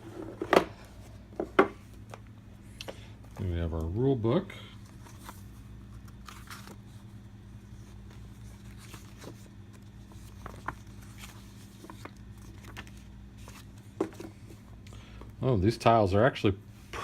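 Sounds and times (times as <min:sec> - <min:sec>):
steady low hum: 0:00.0 - 0:17.0
paper and cardboard rustling: 0:04.8 - 0:14.7.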